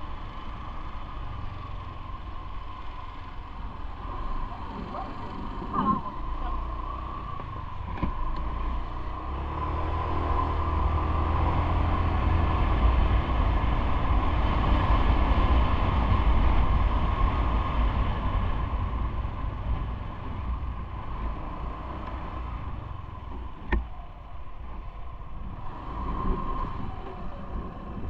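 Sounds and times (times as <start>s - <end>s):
road riding rumble: 0.0s - 28.0s
traffic: 0.0s - 28.0s
wind buffeting microphone: 22.4s - 28.0s.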